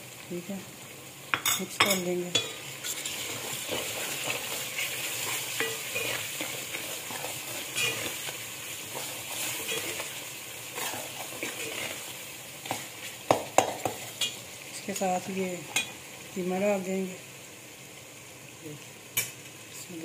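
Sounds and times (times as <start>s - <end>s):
food sizzling in hot fat: 0.0s - 20.0s
metal ladle scraping metal pot: 2.4s - 8.2s, 8.9s - 10.2s.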